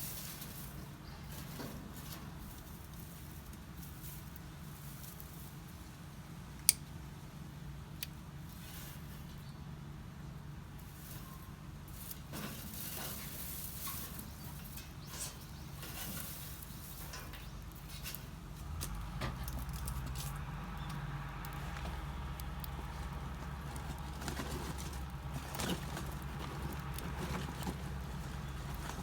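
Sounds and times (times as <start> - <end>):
wood fire crackling and popping: 14.8 - 29.0.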